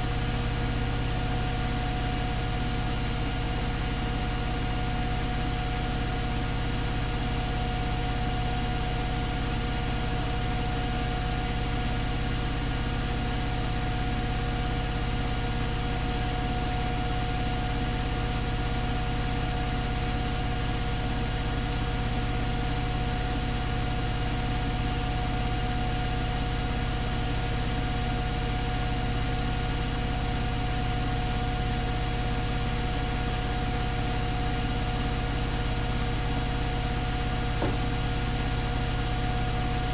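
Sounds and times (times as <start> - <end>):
washing machine humming: 35.1 - 39.1.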